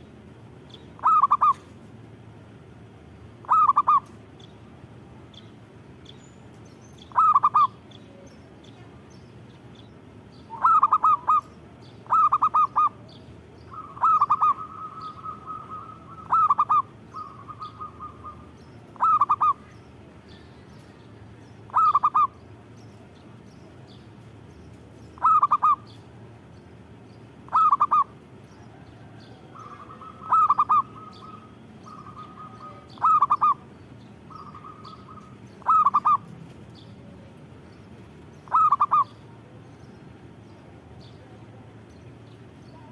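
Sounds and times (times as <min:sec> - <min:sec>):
dove cooing: 0:01.0 - 0:01.7, 0:03.4 - 0:04.2, 0:07.1 - 0:07.8, 0:10.5 - 0:19.7, 0:21.7 - 0:22.4, 0:25.2 - 0:26.0, 0:27.5 - 0:33.7, 0:34.3 - 0:36.3, 0:38.4 - 0:39.3.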